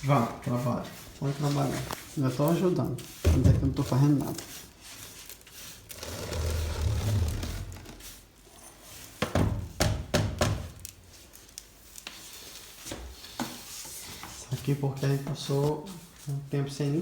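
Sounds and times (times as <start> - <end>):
low scraping rumble: 6.0 - 8.0.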